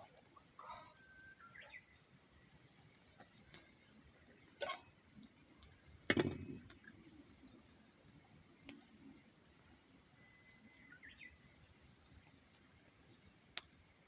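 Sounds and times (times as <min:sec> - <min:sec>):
faint clicks: 0:08.6 - 0:09.0, 0:10.0 - 0:13.8.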